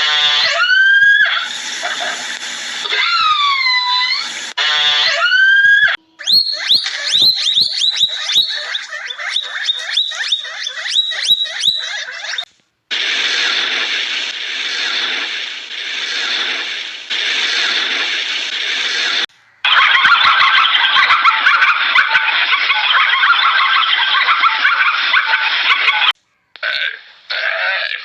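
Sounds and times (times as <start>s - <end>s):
animal calls rising in pitch: 0.0s - 2.2s, 2.8s - 12.5s.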